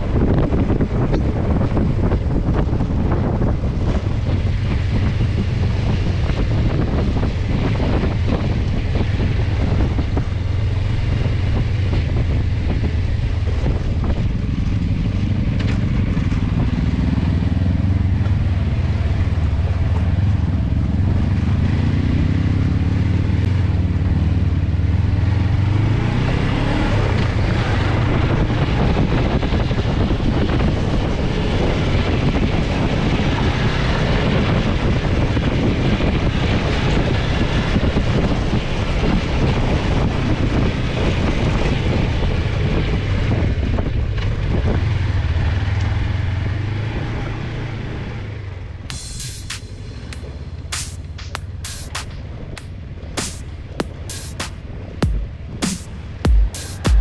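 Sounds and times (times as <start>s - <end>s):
motorcycle engine running: 0.0s - 25.8s, 48.6s - 57.0s
wind noise on microphone: 0.0s - 47.3s.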